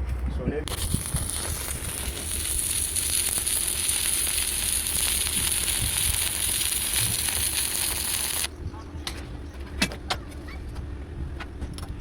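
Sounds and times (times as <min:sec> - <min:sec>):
welding arc crackling sizzle: 0:00.6 - 0:08.5.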